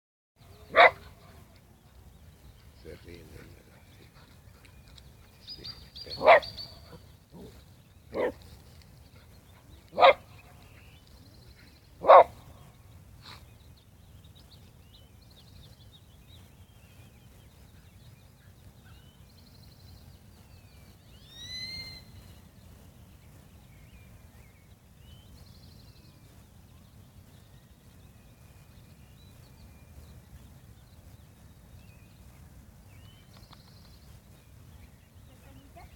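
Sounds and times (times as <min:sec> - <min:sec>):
dog barking: 0:00.7 - 0:01.4, 0:06.0 - 0:06.6, 0:08.1 - 0:08.4, 0:09.9 - 0:10.3, 0:12.0 - 0:12.4.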